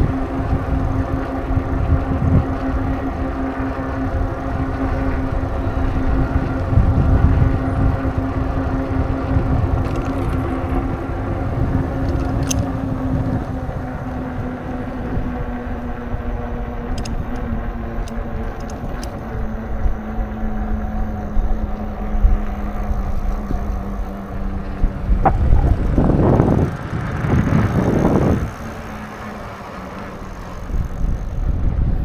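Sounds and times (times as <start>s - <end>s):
motor vehicle engine rumbling: 0.0s - 18.0s, 21.0s - 32.0s
light clicks: 4.0s - 13.7s, 16.9s - 19.5s.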